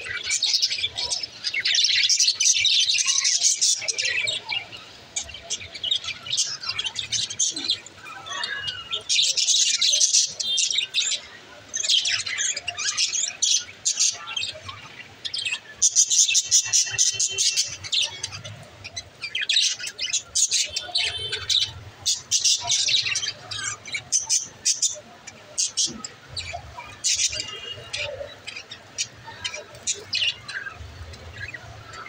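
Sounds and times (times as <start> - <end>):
budgerigars chirping: 0.0 - 30.8.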